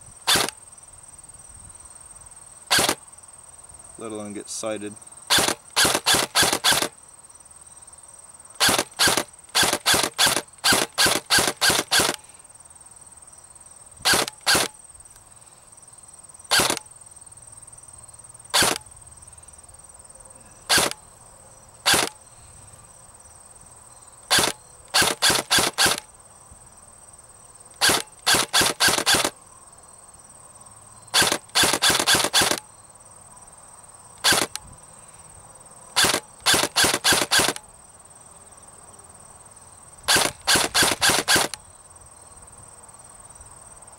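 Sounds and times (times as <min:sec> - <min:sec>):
airsoft rifle shots: 0:00.3 - 0:00.6, 0:02.7 - 0:03.0, 0:05.3 - 0:06.9, 0:08.6 - 0:12.2, 0:14.0 - 0:14.7, 0:16.5 - 0:16.8, 0:18.6 - 0:18.8, 0:20.7 - 0:21.0, 0:21.9 - 0:22.2, 0:24.3 - 0:26.0, 0:27.8 - 0:29.3, 0:31.2 - 0:32.6, 0:34.2 - 0:34.6, 0:36.0 - 0:37.6, 0:40.1 - 0:41.6.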